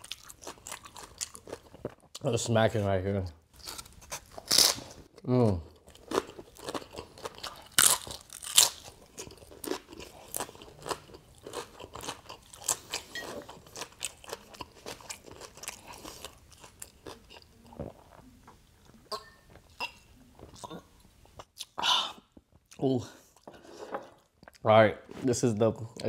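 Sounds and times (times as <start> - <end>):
crunching crisp tortilla: 6.2 - 13.0.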